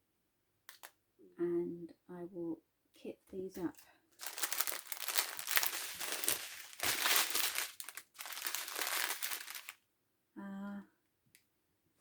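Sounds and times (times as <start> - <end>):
plastic packets crinkling: 4.2 - 9.8.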